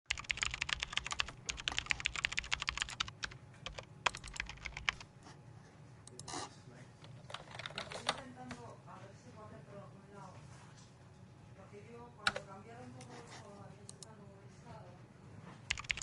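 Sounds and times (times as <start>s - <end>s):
fast typing on keyboard: 0.1s - 5.1s, 7.3s - 8.3s, 15.7s - 16.0s
low steady background hum: 0.1s - 16.0s.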